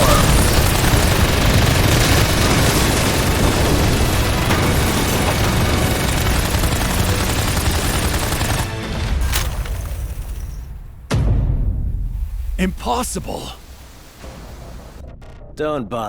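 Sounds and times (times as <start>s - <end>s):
gatling gun firing: 0.0s - 9.6s.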